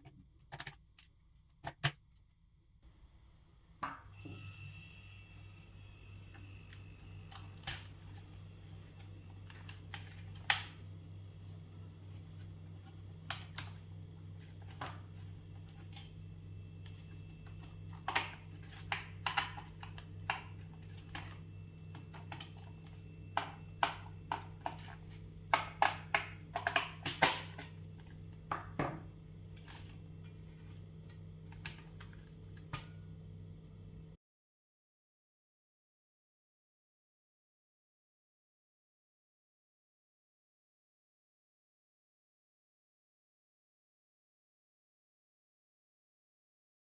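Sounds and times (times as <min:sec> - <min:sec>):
steady low hum: 0:02.6 - 0:34.2.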